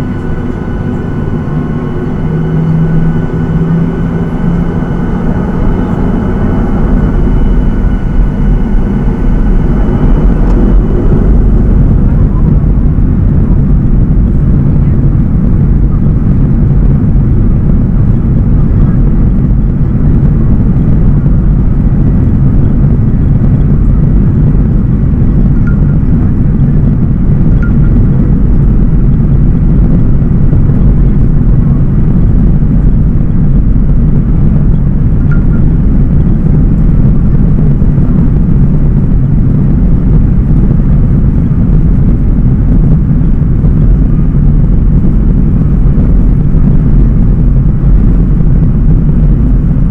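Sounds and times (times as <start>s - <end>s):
jet engines at high thrust: 0.0s - 49.9s.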